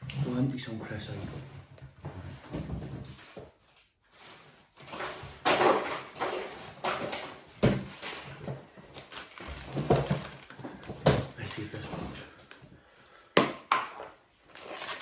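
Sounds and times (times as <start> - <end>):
crisp packet crinkling: 8.9 - 10.8, 14.4 - 15.0.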